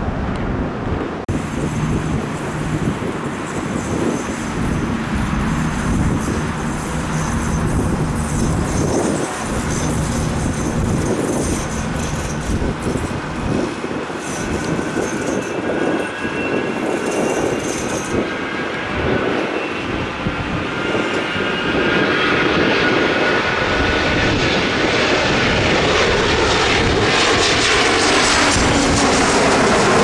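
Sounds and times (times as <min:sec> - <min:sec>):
faint engine whine: 0:00.0 - 0:17.4
jet engines rumbling: 0:00.0 - 0:30.0.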